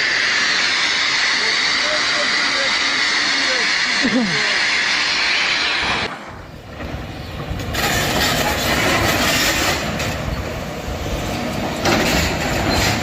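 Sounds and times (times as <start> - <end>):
heavy machinery rumbling and rattling: 5.6 - 13.0.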